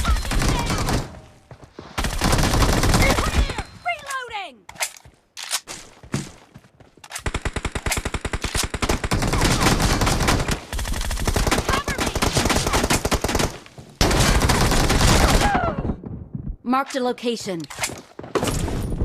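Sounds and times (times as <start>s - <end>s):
rapid gunfire bursts: 0.0s - 1.2s, 2.0s - 3.6s, 7.2s - 15.5s.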